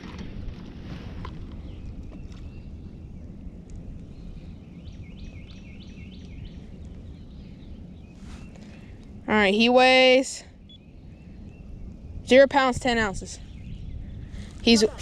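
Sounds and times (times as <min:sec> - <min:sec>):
low outdoor rumble: 0:00.0 - 0:15.0
bird chirping: 0:04.1 - 0:08.8, 0:10.6 - 0:12.2.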